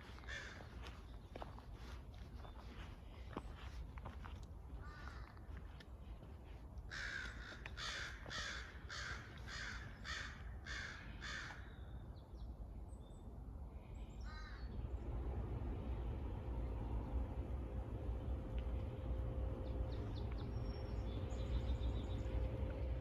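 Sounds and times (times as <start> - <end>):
crow cawing: 0.2 - 0.6, 6.9 - 11.6.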